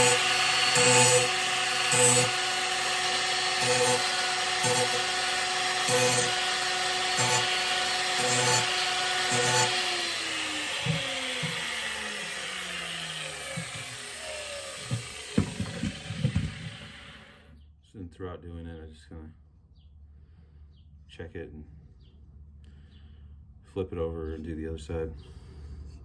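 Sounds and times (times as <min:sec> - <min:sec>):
angle grinder grinding steel: 0:00.0 - 0:17.4
grinder disc spinning down: 0:00.0 - 0:17.4
knocks: 0:14.8 - 0:17.0.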